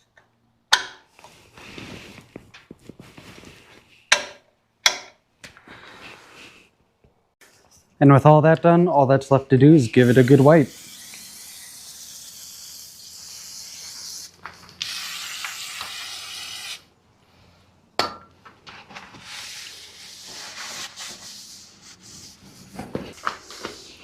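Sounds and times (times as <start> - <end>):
rag rubbing a surface: 19.1 - 24.0.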